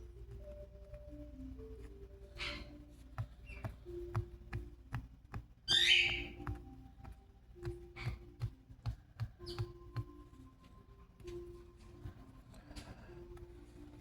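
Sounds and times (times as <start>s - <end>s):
soft background music: 0.0s - 14.0s
parrot squawking: 2.4s - 2.8s, 5.7s - 6.4s.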